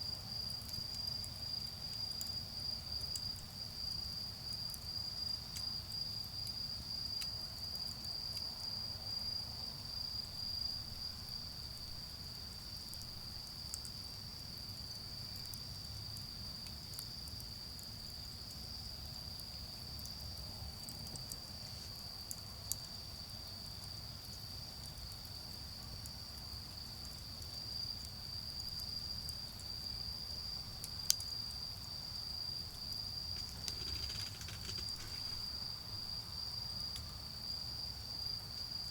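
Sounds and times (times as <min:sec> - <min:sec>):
crickets trilling: 0:00.0 - 0:38.9
fire crackling: 0:32.6 - 0:36.2.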